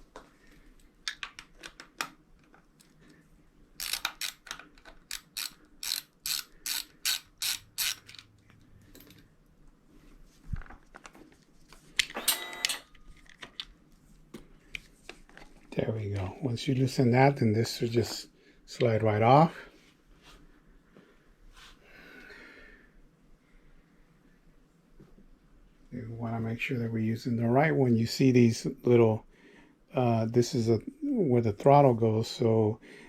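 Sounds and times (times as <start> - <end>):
ratchet clicking: 3.8 - 4.5, 5.1 - 8.2.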